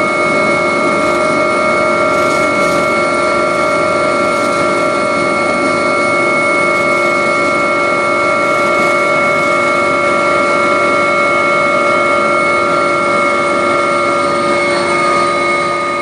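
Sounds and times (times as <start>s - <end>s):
helicopter turbine and rotor: 0.0s - 16.0s.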